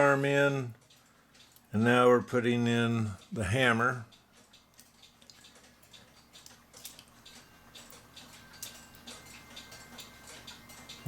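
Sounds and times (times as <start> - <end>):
light metallic clicks of clock parts: 0.0 - 11.0.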